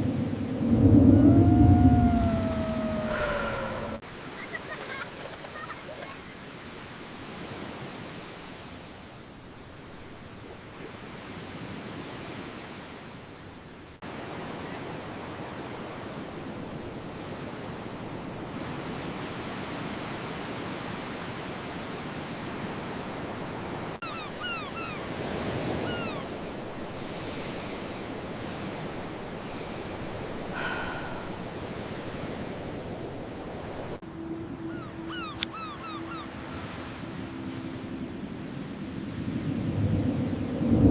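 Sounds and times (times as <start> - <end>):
surf rushing: 0.0 - 6.3
wind: 0.0 - 40.9.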